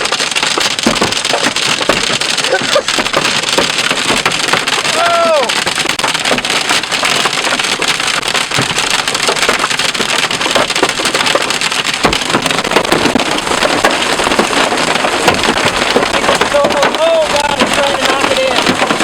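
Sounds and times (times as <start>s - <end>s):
hail pelting a vehicle: 0.0s - 19.0s
heavier hail strikes: 0.0s - 19.0s.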